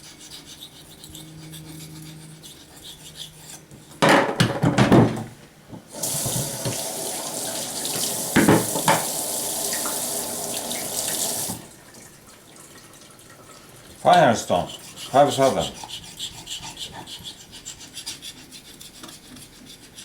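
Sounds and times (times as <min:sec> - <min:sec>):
tap water running into sink: 0:05.9 - 0:14.0.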